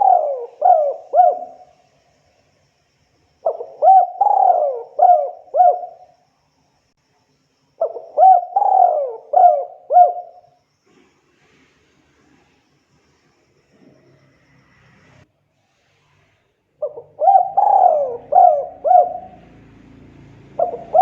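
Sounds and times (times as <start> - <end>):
dove cooing: 0.0 - 1.7, 3.4 - 6.1, 7.8 - 10.5, 16.8 - 21.0.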